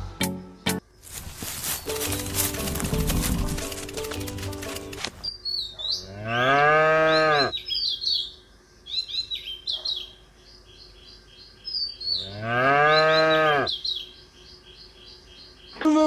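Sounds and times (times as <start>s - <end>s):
birds chirping: 0.0s - 16.0s
cow mooing: 6.0s - 7.5s, 12.2s - 13.7s.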